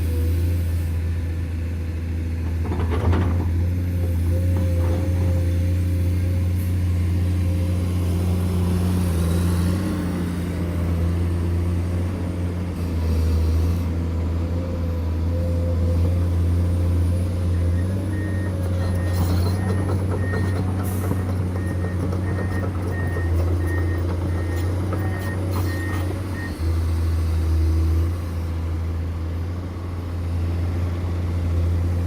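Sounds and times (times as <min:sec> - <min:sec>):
heavy diesel machinery engine droning: 0:00.0 - 0:32.0
reversing alarm beeping: 0:17.5 - 0:26.7.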